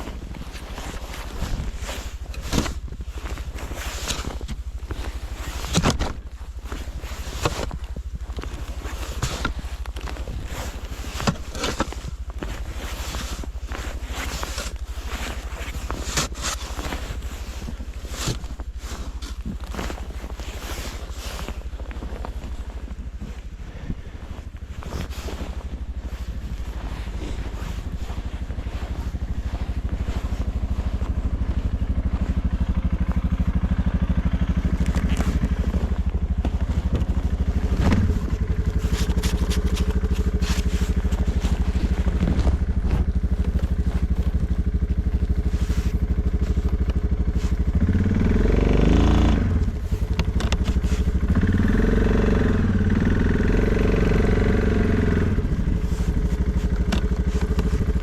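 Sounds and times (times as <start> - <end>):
knocks and scrapes of plowing snow: 0.0 - 58.0
atv engine revving: 28.2 - 58.0.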